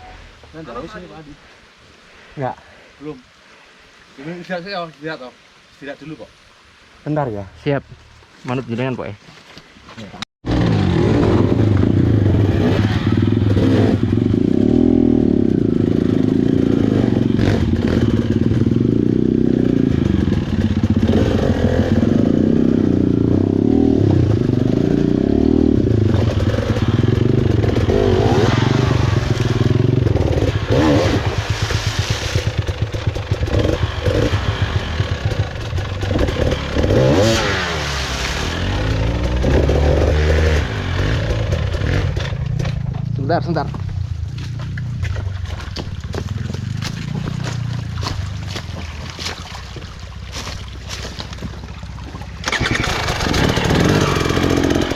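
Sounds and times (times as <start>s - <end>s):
dirt bike engine revving: 10.4s - 42.9s, 52.4s - 54.9s.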